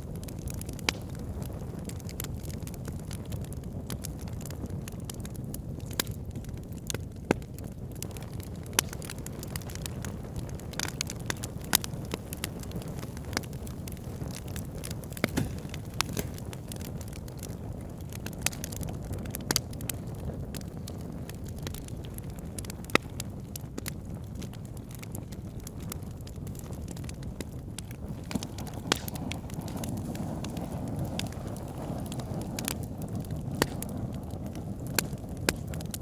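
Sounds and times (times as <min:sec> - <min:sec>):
low rumble of flames: 0:00.0 - 0:36.0
wood fire crackling: 0:00.0 - 0:36.0
sharp pops and snaps: 0:05.8 - 0:20.0, 0:20.6 - 0:34.0, 0:35.0 - 0:36.0.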